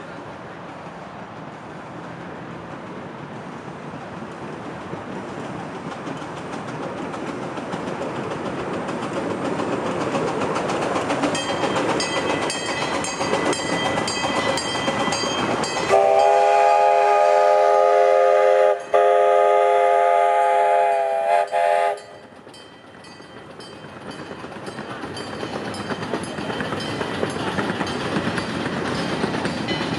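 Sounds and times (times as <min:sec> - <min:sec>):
rhythmic clicking of train: 0:00.0 - 0:29.9
steam locomotive running: 0:00.0 - 0:29.9
steam whistle blast: 0:15.9 - 0:22.1.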